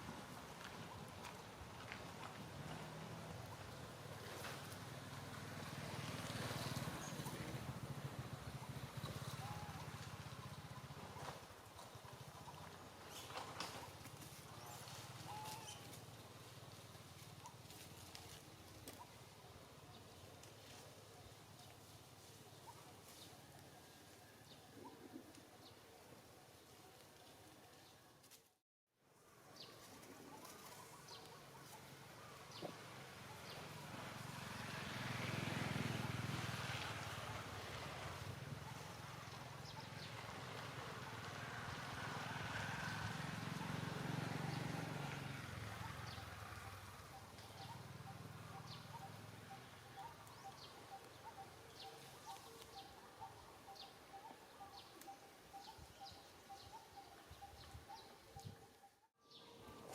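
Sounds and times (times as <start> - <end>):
vehicle engine passing: 1.9 - 11.5, 31.9 - 55.7.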